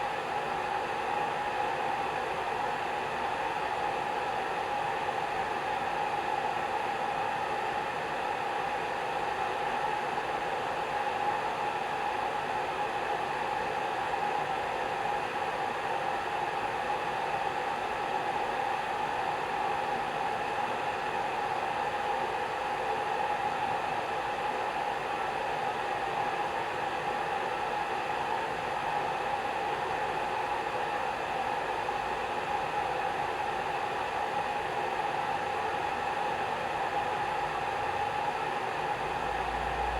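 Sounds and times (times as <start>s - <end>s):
fan motor whine: 31.3s - 39.9s.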